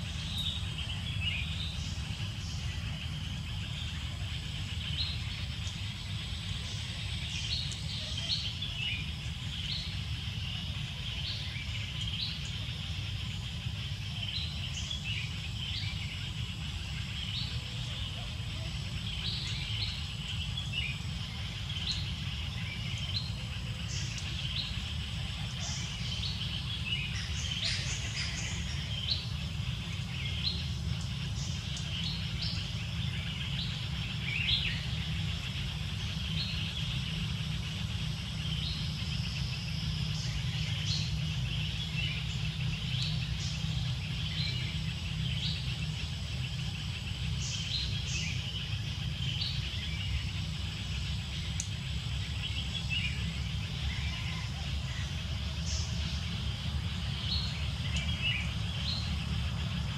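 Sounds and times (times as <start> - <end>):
birds chirping: 0.0 - 59.9
low background rumble: 0.0 - 59.9.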